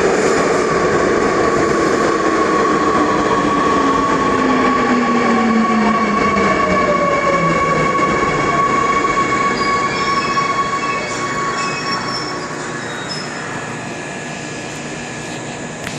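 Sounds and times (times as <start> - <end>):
high squeal: 8.6 - 14.2.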